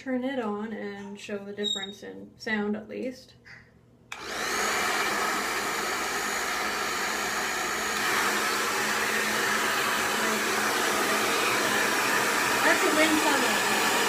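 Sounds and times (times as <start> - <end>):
hair dryer blowing air: 4.1 - 14.0.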